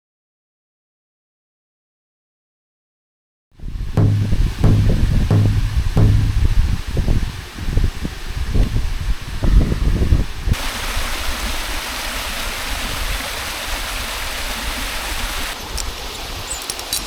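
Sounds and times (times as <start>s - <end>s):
low rumbling thumps: 4.0s - 7.2s
waterfall rushing: 10.6s - 17.0s.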